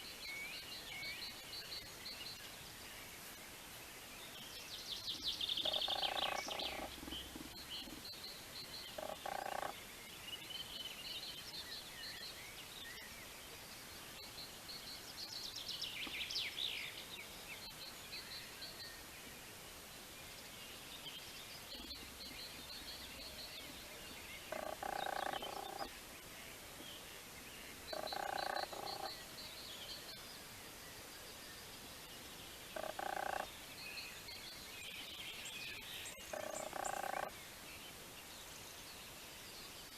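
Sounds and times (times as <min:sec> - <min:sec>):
frogs croaking: 0:05.6 - 0:08.0, 0:08.9 - 0:09.8, 0:24.5 - 0:25.9, 0:27.9 - 0:29.2, 0:32.8 - 0:33.5, 0:36.2 - 0:37.4.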